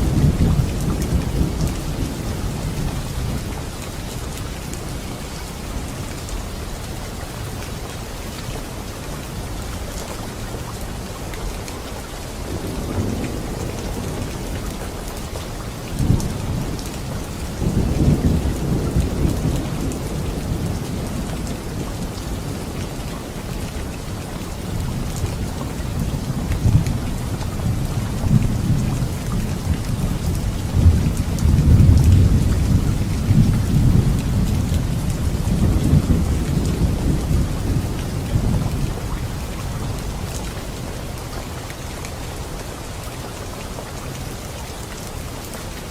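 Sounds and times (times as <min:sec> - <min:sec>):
thunder rumbling: 0:00.0 - 0:04.8, 0:12.5 - 0:15.1, 0:15.7 - 0:22.9, 0:24.7 - 0:40.3
heavy rain: 0:00.0 - 0:45.9.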